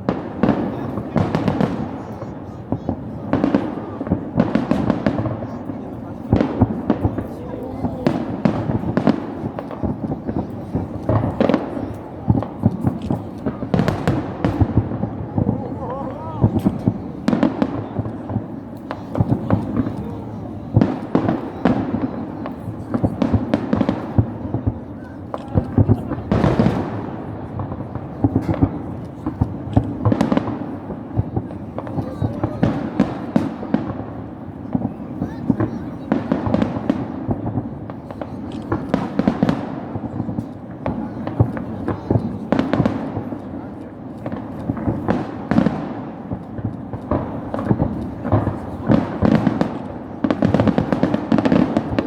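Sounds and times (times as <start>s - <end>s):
fireworks bangs and crackles: 0.0s - 52.0s.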